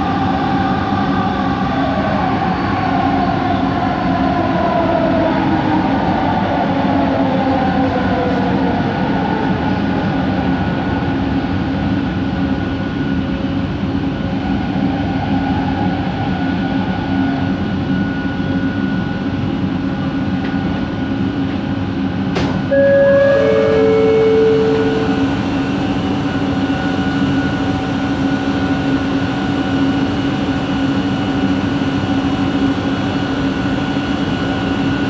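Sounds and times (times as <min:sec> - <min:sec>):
train running noise: 0:00.0 - 0:35.0
train motor whine: 0:22.4 - 0:29.0
loud steady tone: 0:22.7 - 0:29.3.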